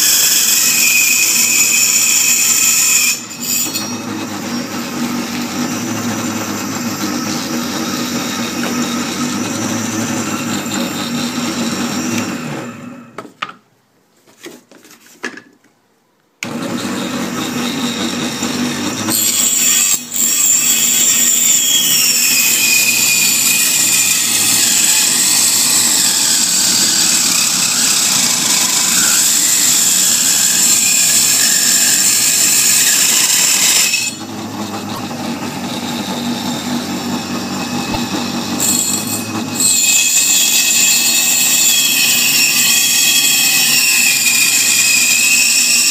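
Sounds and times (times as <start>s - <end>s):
machine running: 22.6s - 41.4s.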